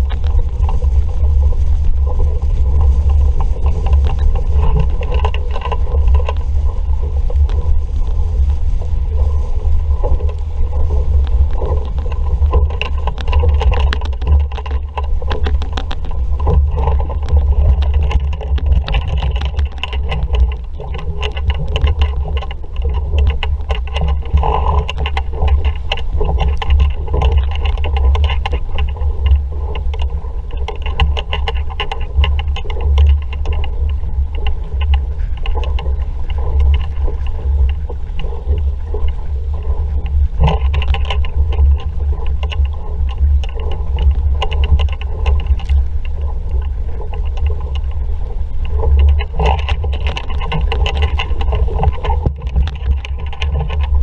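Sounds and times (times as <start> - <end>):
water slapping hull: 0.0 - 54.0
water splashing against hull: 0.0 - 54.0
wind buffeting microphone: 0.0 - 54.0.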